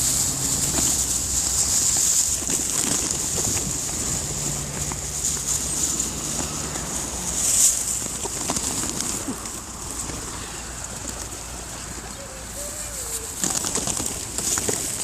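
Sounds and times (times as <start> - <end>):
pigeon wingbeats: 0.0 - 15.0
pigeon cooing: 8.4 - 15.0.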